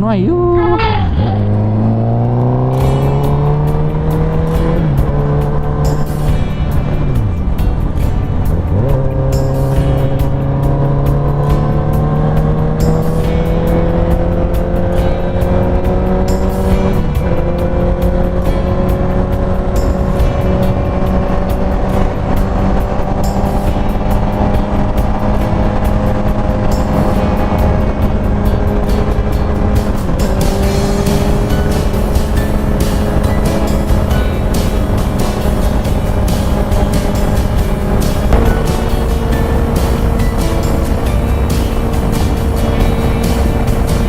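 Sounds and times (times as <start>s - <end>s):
motorcycle engine pulling at speed: 1.2s - 44.0s
wind rush: 34.3s - 44.0s.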